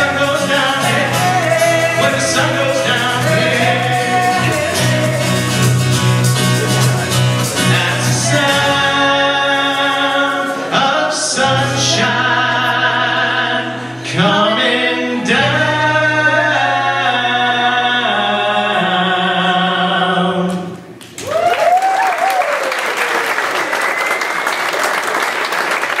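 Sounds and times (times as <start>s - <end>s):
people singing together: 0.0s - 6.1s, 7.5s - 20.8s
acoustic guitar: 0.0s - 21.0s
applause: 21.0s - 26.0s
vocal whoop: 21.2s - 23.6s.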